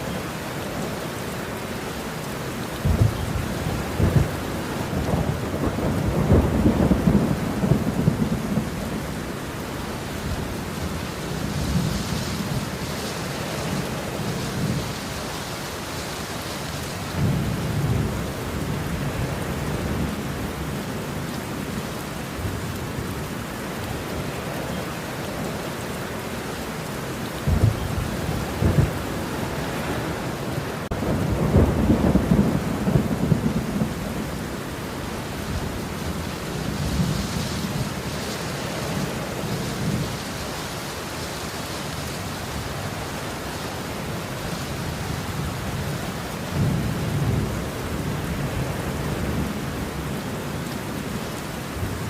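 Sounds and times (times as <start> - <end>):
heavy rain: 0.0 - 52.0
thunder rumbling: 2.7 - 21.7, 27.2 - 40.8, 44.0 - 52.0
thunder cracks: 2.8 - 8.7, 30.9 - 34.0.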